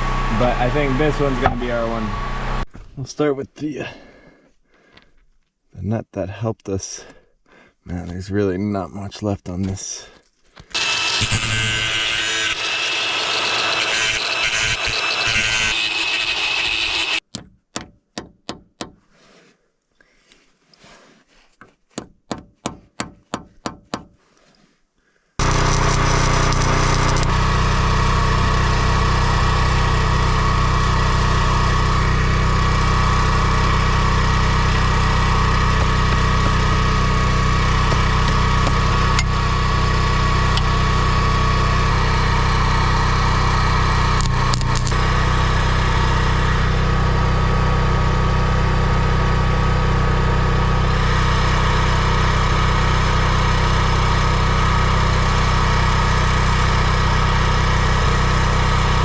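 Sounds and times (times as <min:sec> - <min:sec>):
loud steady machine engine: 0:00.0 - 0:02.7, 0:10.7 - 0:17.2, 0:25.4 - 0:59.0.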